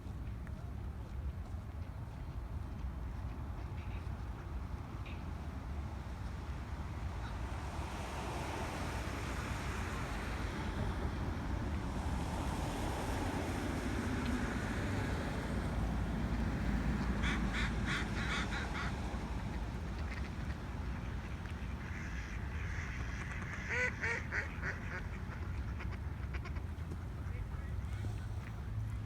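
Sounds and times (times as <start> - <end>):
outdoor rush with low rumble: 0.0 - 29.0
ducks quacking: 16.6 - 28.6.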